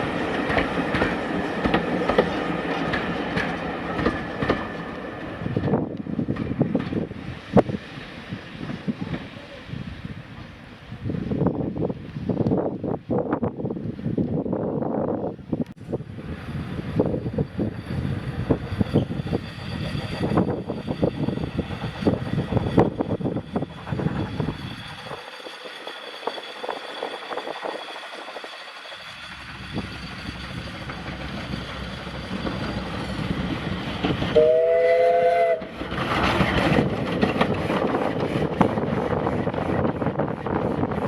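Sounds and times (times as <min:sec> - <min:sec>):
train wheels clicking over rails: 0:00.0 - 0:09.5, 0:16.3 - 0:41.0
locomotive whistle blast: 0:34.3 - 0:35.8.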